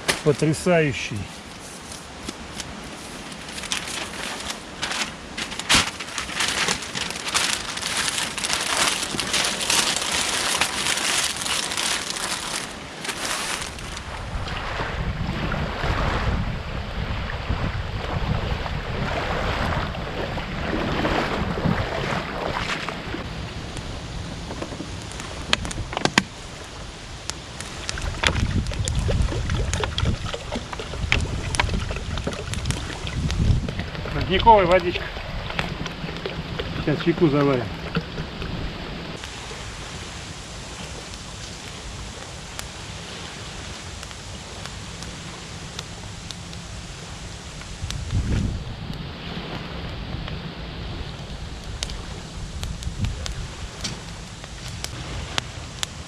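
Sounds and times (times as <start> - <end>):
wind rumbling on microphone: 0.0 - 56.0
crisp material crinkling: 1.3 - 14.2.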